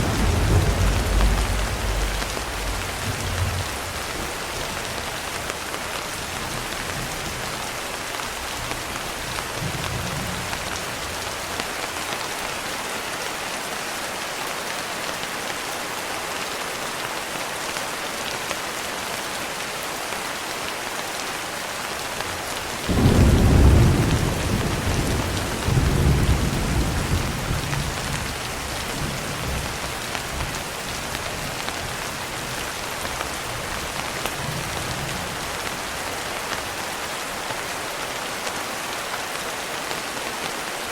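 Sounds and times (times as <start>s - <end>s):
thunder rumbling: 0.0s - 5.4s, 22.8s - 30.5s
rain pattering: 0.0s - 40.9s.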